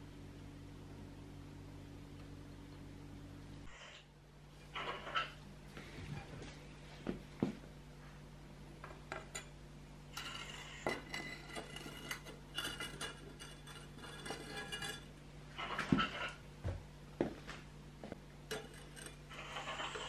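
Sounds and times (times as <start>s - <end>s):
steady low hum: 0.0s - 20.0s
thin ringing metallic tones: 10.1s - 15.2s.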